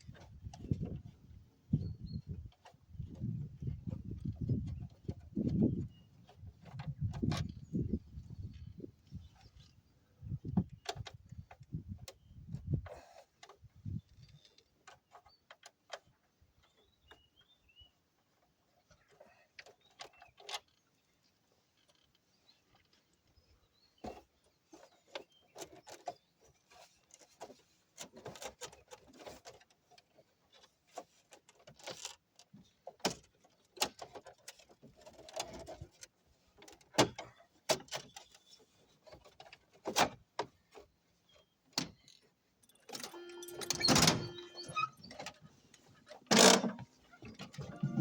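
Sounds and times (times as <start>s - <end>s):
clicks and rustles of hand work: 0.0s - 48.0s
squeaky scraping: 43.0s - 48.0s.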